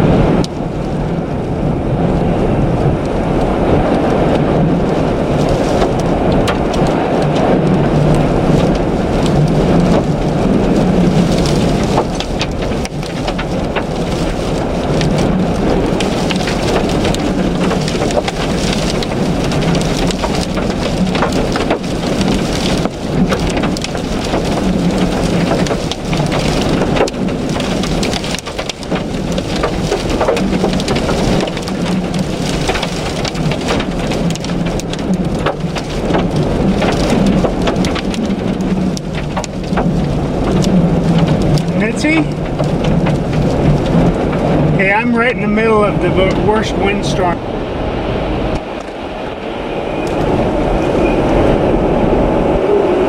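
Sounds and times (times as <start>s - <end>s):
storm wind buffeting a car: 0.0s - 53.0s
small sharp ticks pattering: 8.1s - 44.4s.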